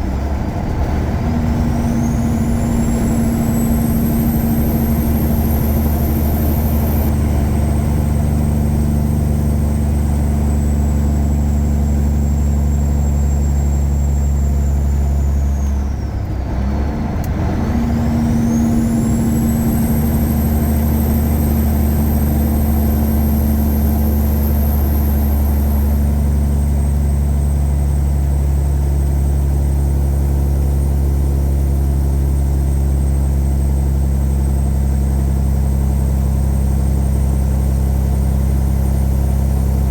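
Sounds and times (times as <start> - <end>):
diesel truck engine running: 0.0 - 39.9
high whine: 1.6 - 12.6.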